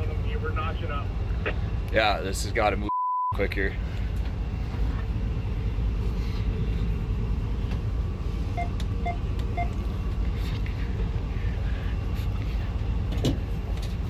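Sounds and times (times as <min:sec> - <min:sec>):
diesel locomotive rumbling: 0:00.0 - 0:14.0
short beeps: 0:02.9 - 0:03.4.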